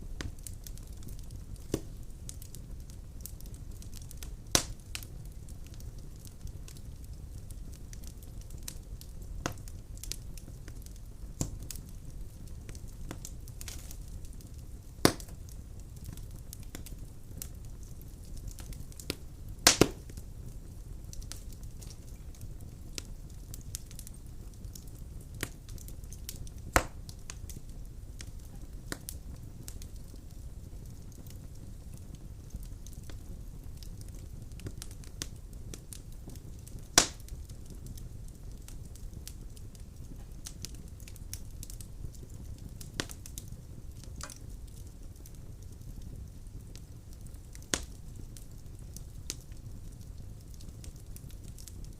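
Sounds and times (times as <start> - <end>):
fire rumbling and crackling: 0.0 - 51.9
loud pops of splitting logs: 15.0 - 15.4, 19.7 - 20.0, 26.8 - 27.0, 37.0 - 37.2.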